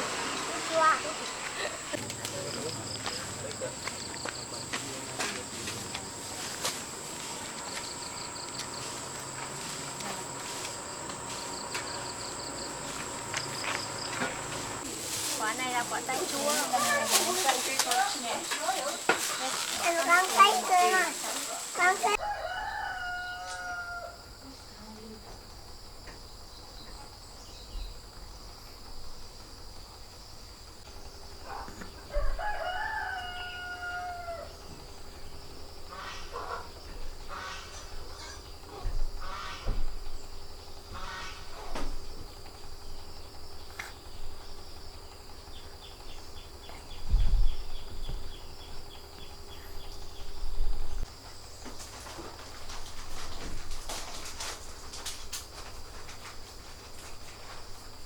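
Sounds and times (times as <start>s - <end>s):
high-pitched hum: 0.0s - 14.8s
insect rapid chirps: 0.0s - 52.9s
insects droning: 0.0s - 58.0s
rooster crowing: 22.1s - 24.4s, 32.0s - 34.8s.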